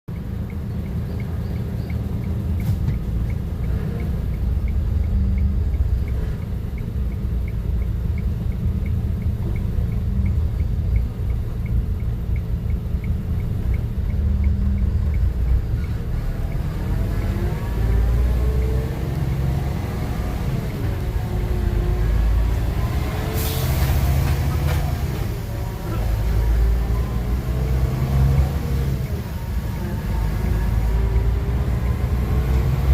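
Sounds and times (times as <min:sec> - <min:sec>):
fast regular ticking: 0:00.1 - 0:22.8
paving machinery diesel rumble: 0:00.1 - 0:32.9.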